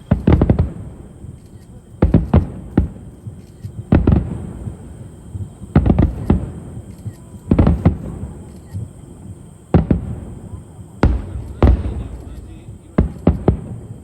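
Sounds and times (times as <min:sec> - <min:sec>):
fireworks booming overhead: 0:00.0 - 0:14.0.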